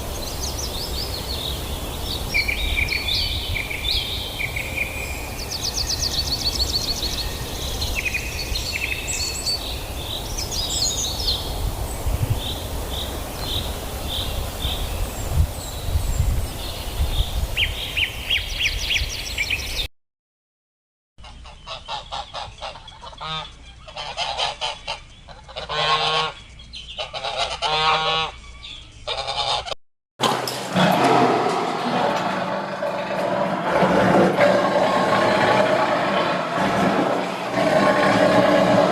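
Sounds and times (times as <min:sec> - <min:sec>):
small birds chirping: 0:00.0 - 0:19.9, 0:21.3 - 0:29.5
wind rumble: 0:00.0 - 0:19.9, 0:30.2 - 0:38.9
waterfowl honking: 0:21.2 - 0:26.4, 0:27.0 - 0:28.4, 0:29.1 - 0:29.8.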